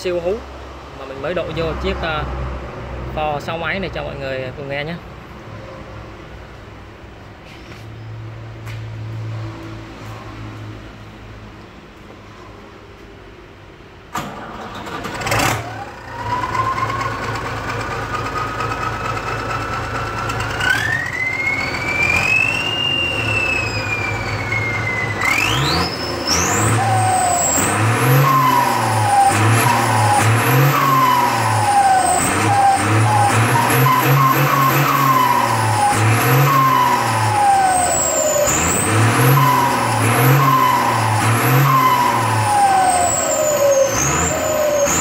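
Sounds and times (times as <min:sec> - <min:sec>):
tractor engine revving: 0:14.1 - 0:45.0
turbo whistle: 0:20.6 - 0:45.0.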